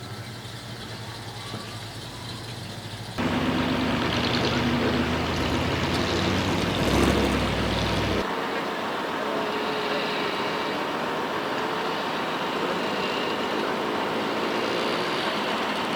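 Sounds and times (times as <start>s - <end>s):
heavy truck engine running: 0.0s - 8.3s.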